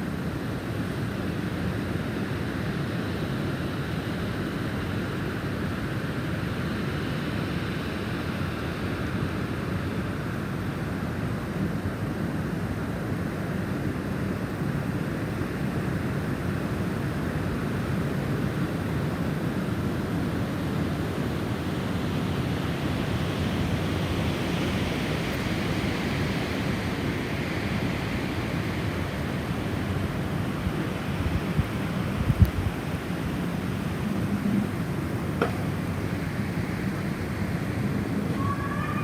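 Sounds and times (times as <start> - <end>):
snowstorm wind blowing: 0.0 - 39.0
wind bumps on microphone: 30.7 - 35.8.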